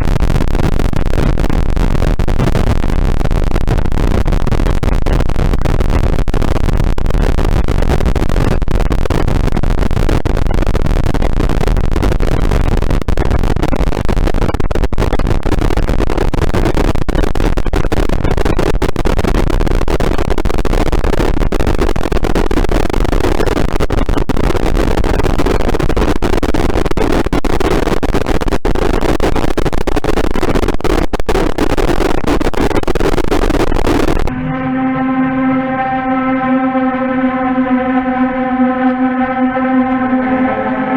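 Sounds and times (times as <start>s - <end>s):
steady tone with overtones: 34.0s - 40.9s
dense noise music: 34.2s - 40.9s.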